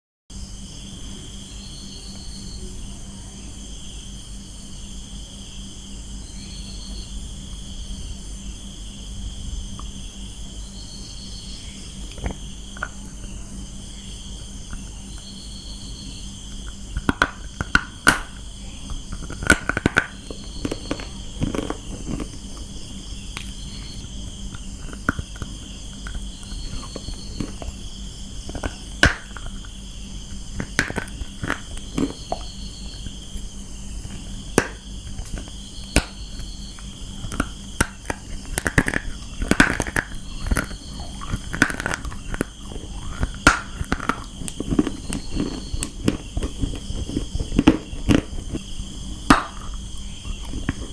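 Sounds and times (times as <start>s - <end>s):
insects chirring: 0.3s - 50.9s
crunching bites into clay: 11.3s - 50.9s.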